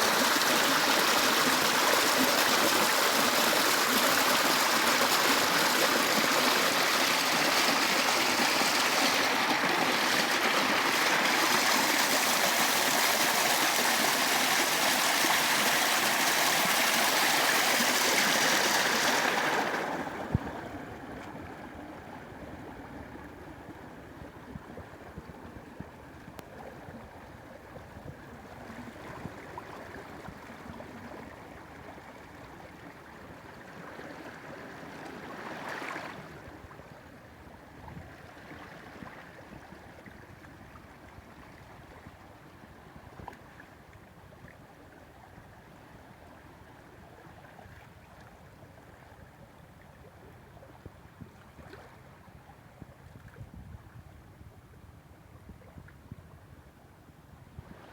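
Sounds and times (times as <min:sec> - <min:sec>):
stream rushing: 0:00.0 - 0:20.4.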